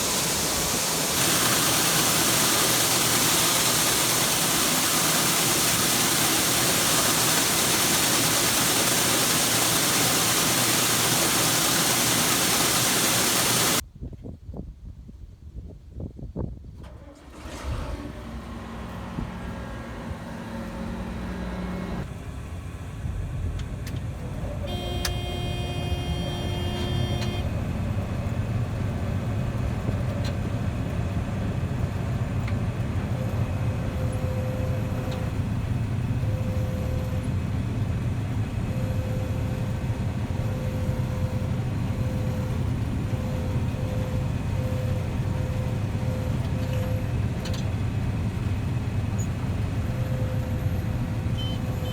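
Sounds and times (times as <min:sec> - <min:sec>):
farm machinery engine rumbling: 0:00.0 - 0:13.8, 0:16.8 - 0:51.9
short pitched tone: 0:24.7 - 0:27.5.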